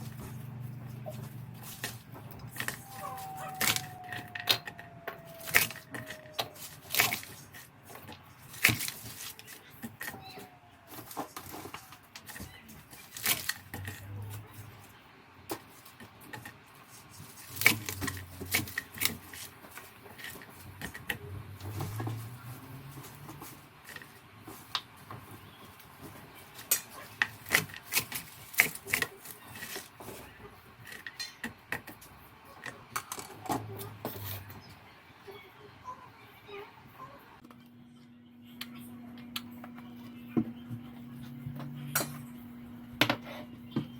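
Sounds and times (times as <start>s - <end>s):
utensils clinking against dishes: 30.8s - 34.6s.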